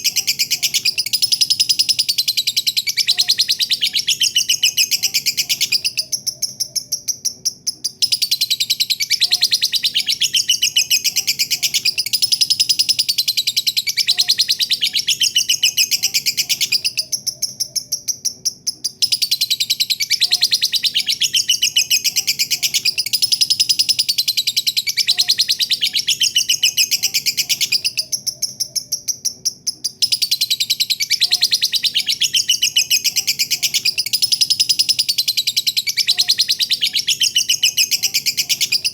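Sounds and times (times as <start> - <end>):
lovebird shrill chattering song: 18.9 - 38.9.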